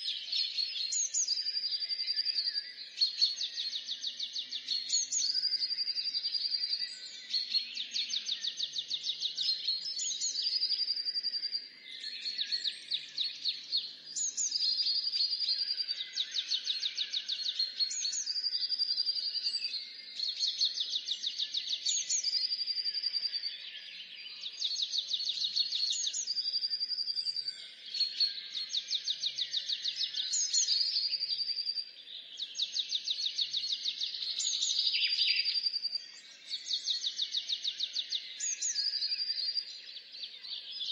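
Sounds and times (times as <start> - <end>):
songbirds trilling and whistling: 0.0 - 40.9.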